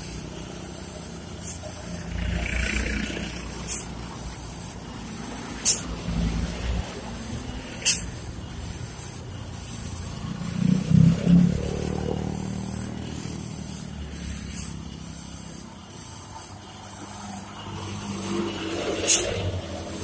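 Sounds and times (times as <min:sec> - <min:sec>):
truck engine at low revs: 0:00.0 - 0:20.0.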